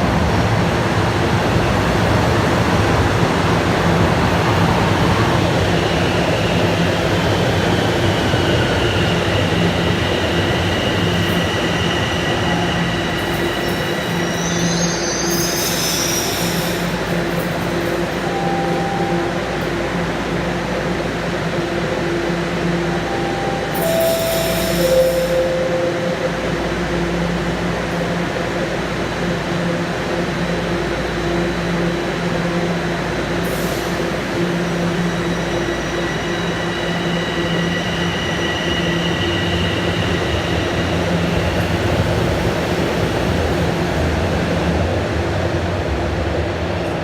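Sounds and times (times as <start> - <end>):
subway train electric hum: 0.0 - 47.0
descending three-note tone: 22.9 - 27.4.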